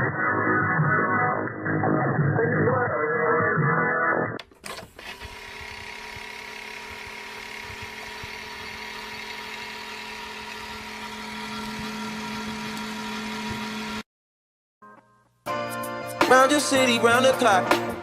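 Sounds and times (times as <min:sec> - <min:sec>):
mechanical hum: 0:04.6 - 0:14.0.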